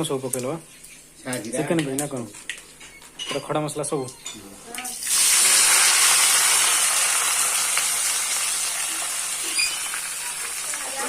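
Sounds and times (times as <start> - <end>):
hot oil sizzling: 4.6 - 11.0.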